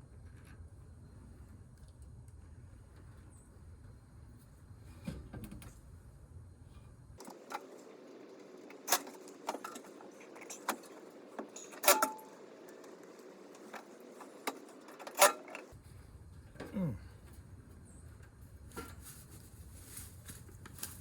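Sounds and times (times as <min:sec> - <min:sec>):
metal tools clinking: 0:07.2 - 0:15.7.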